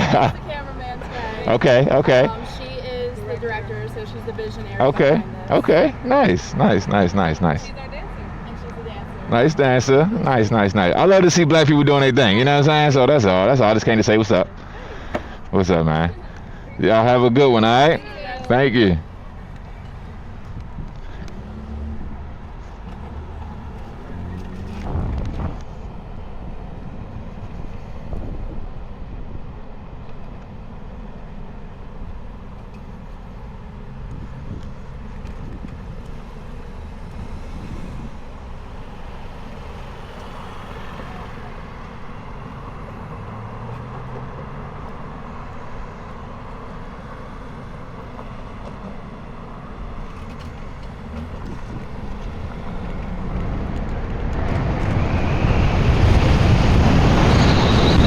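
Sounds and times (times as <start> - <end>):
street traffic: 0.0 - 58.0
wind on microphone: 23.6 - 29.6.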